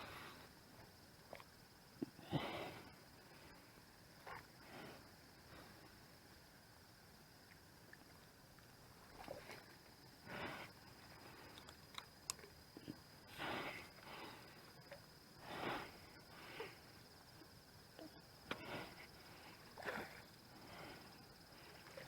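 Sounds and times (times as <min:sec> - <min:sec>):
soft breaths or sniffs: 0:10.2 - 0:11.6, 0:13.2 - 0:14.7, 0:15.4 - 0:17.0, 0:18.5 - 0:22.0.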